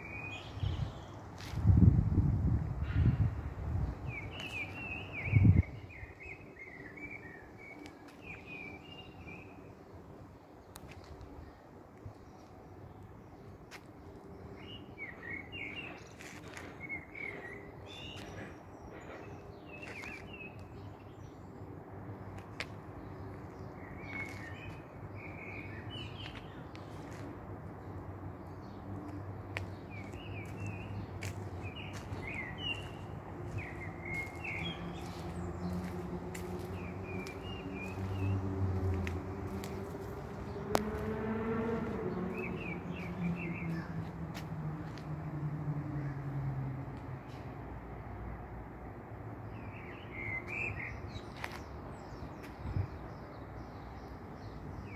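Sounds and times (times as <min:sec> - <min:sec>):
small birds chirping: 0:28.5 - 0:41.1, 0:41.9 - 0:45.0.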